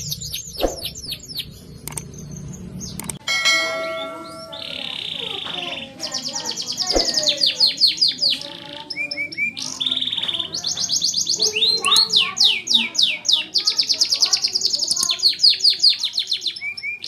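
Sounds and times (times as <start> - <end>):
canary singing: 0.0 - 17.0.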